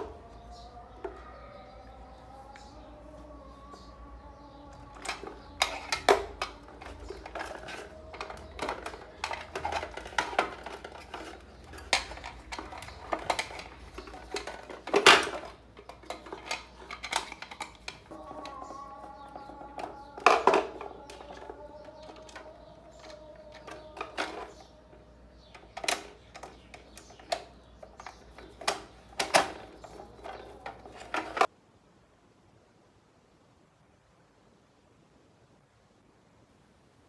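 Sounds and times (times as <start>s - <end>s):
small hard objects clinking: 4.8s - 24.8s.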